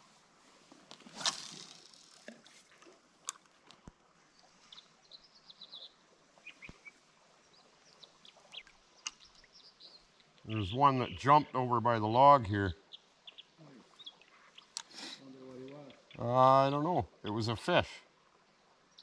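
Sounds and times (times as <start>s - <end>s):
small birds chirping: 4.3s - 17.5s.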